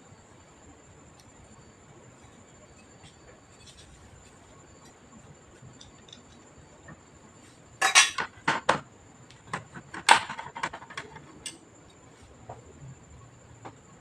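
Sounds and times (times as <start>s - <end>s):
small parts clattering on hard surface: 7.8s - 8.8s, 9.5s - 11.6s.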